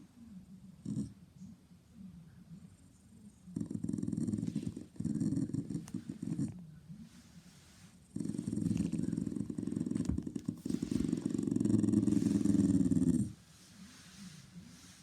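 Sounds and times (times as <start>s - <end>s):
dog rumbling low: 3.6s - 6.6s, 8.1s - 13.4s.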